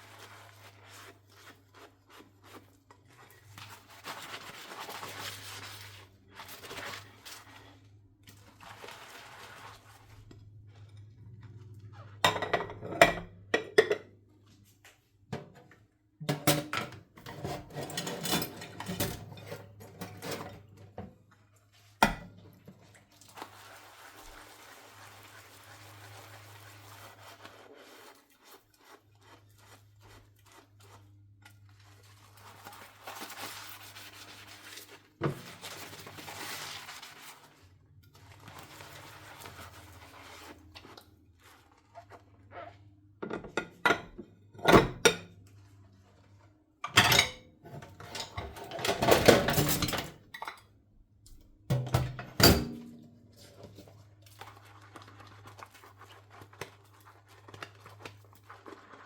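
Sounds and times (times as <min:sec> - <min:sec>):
soft scrubbing: 0:00.0 - 0:12.3, 0:21.2 - 0:43.2, 0:45.4 - 0:46.8, 0:52.8 - 0:59.0
dishes and cutlery clinking: 0:12.2 - 0:14.1, 0:16.3 - 0:20.8, 0:46.8 - 0:50.7, 0:51.7 - 0:53.1.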